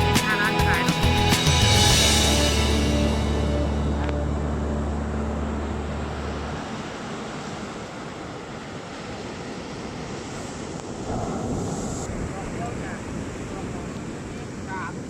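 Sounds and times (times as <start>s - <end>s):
low hum: 1.6s - 9.1s, 10.6s - 14.0s
sea surf washing on shore: 6.1s - 15.0s
wind on microphone: 9.6s - 15.0s.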